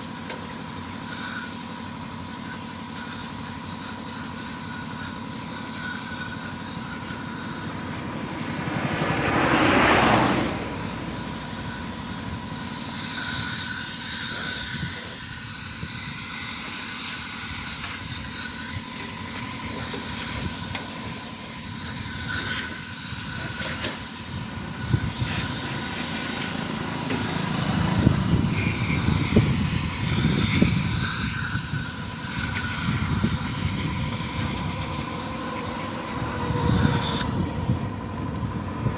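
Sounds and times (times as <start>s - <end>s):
pressure washer spray hissing: 0.0s - 37.2s
pressure washer motor: 0.0s - 37.8s.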